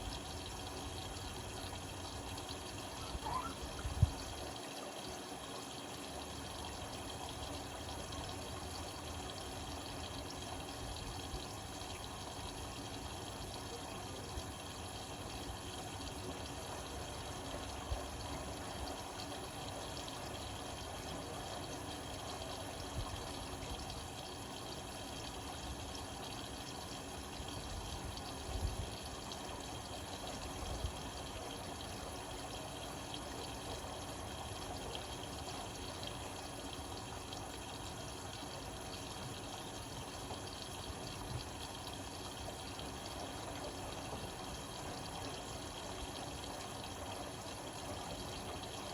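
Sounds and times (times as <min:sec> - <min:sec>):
water splashing in washing machine: 0:00.0 - 0:12.2.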